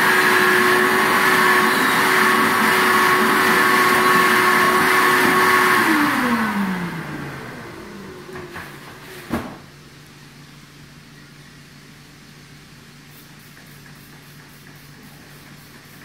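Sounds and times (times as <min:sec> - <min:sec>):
vacuum cleaner motor whine: 0:00.0 - 0:09.6.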